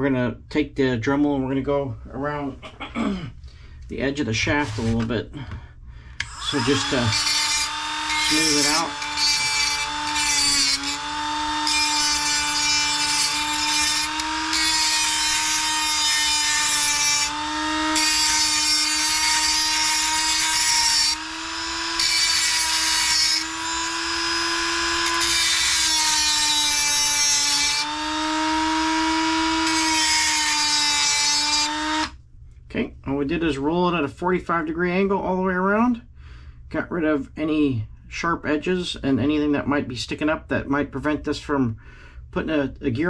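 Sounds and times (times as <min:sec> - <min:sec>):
bit grinding metal: 0:06.2 - 0:32.1
rotary tool whining: 0:06.2 - 0:32.1.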